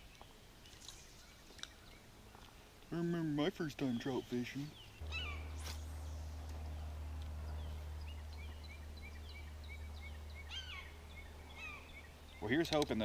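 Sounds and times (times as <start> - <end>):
bird chirping: 0.0 - 13.0
steady low rumble: 4.9 - 12.4.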